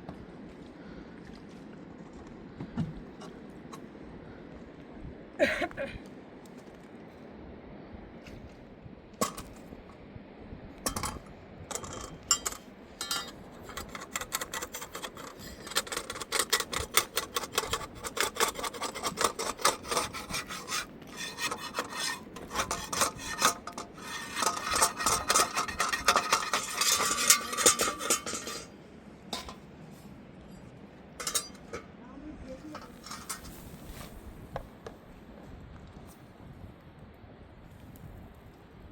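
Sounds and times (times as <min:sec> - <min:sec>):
rhythmic hard scraping strokes: 0:10.9 - 0:28.7, 0:31.2 - 0:31.9, 0:32.6 - 0:33.6.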